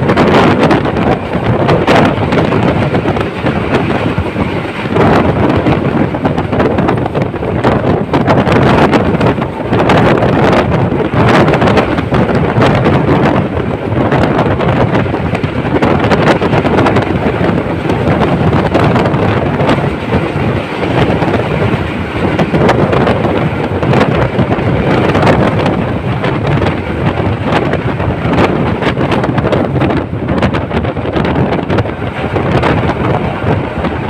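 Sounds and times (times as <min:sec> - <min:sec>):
train running noise: 0:00.0 - 0:34.0
wind rushing over microphone: 0:00.0 - 0:34.0.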